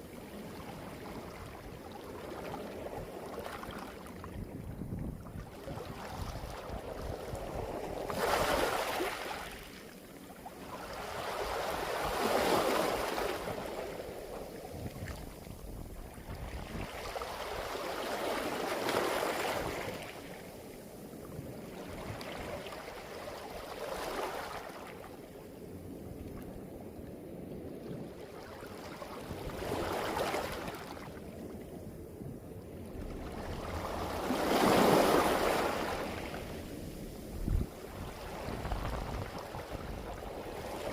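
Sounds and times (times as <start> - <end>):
waves washing up a beach: 0.0 - 40.9.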